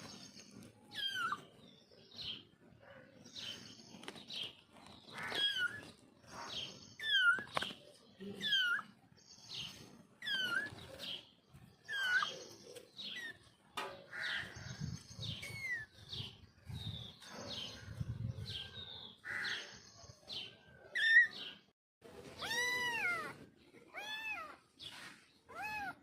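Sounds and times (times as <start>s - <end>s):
kitten mewing: 8.4s - 8.9s, 22.4s - 24.6s, 25.5s - 26.0s.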